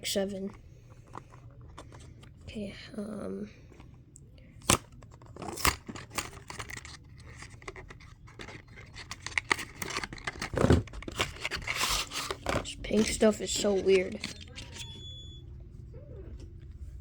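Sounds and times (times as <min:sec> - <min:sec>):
packaging crinkling and tearing: 0:04.6 - 0:13.3.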